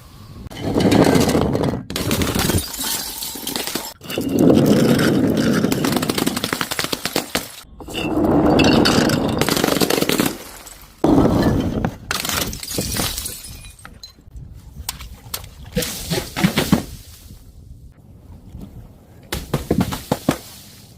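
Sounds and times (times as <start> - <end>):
glass bottles shattering: 2.0 - 6.5, 7.7 - 14.3
glass shards clattering: 2.3 - 6.2, 7.8 - 14.3
glass pieces tinkling: 2.5 - 6.2, 12.5 - 14.3.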